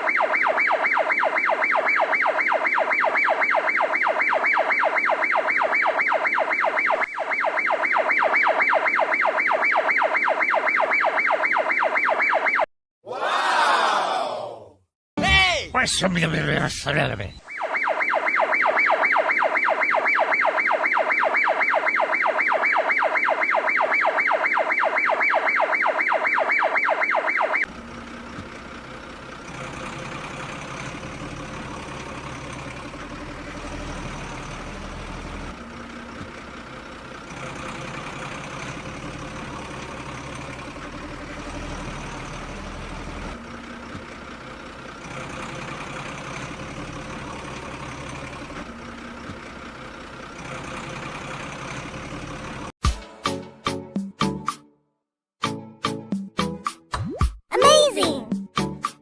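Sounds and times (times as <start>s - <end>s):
toy siren pulsing tone: 0.0s - 12.7s, 17.4s - 27.7s
steady engine-like rumble: 27.7s - 52.8s.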